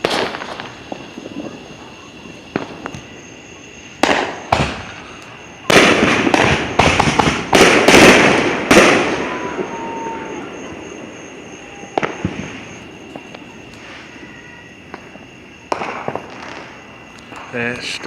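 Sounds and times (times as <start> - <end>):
fireworks pops: 0.0 - 1.7, 2.4 - 3.2, 4.0 - 9.9, 11.9 - 14.1, 14.8 - 17.6
fireworks bangs: 0.0 - 18.0.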